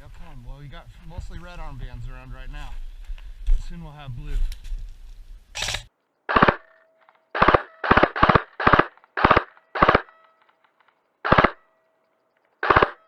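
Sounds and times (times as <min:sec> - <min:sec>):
airsoft gun firing bursts: 0:05.6 - 0:06.7, 0:07.4 - 0:10.2, 0:11.2 - 0:11.6, 0:12.6 - 0:13.0.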